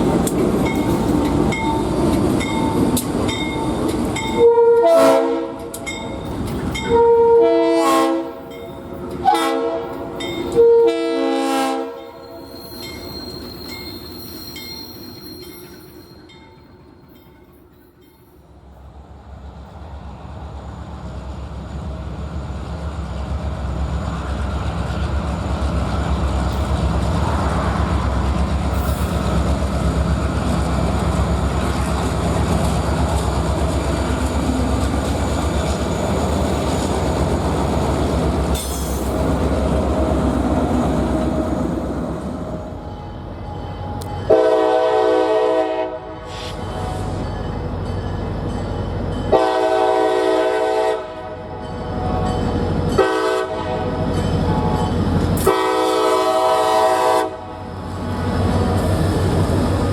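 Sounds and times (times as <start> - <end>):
train rolling on rails: 0.0 - 59.9
locomotive engine rumble: 18.8 - 45.6.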